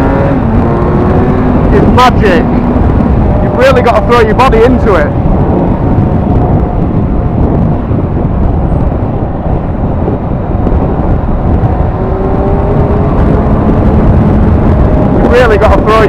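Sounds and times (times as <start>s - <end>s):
motorcycle engine running: 0.0s - 15.9s
wind rush: 0.0s - 16.0s.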